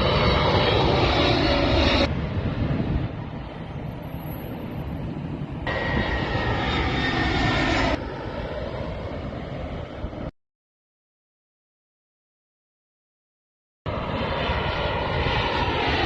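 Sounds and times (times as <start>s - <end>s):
aircraft engine rumble with whine: 0.0s - 10.4s, 13.9s - 16.0s.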